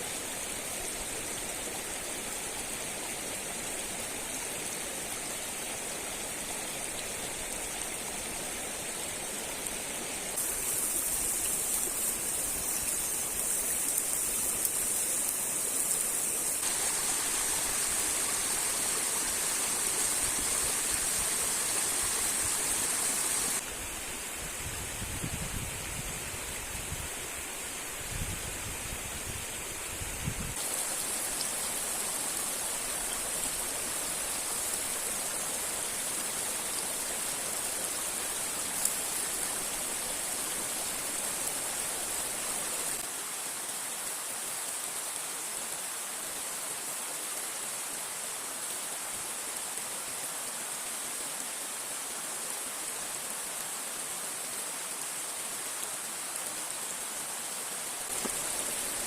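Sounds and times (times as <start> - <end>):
river rushing over rocks: 0.2 - 23.6, 54.8 - 59.0.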